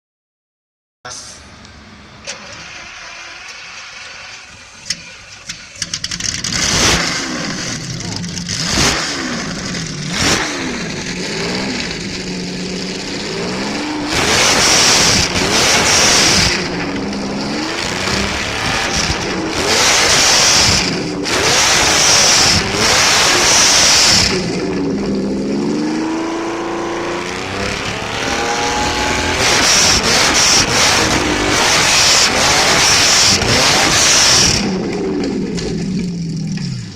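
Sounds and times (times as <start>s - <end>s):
sports car engine revving: 5.8s - 36.9s.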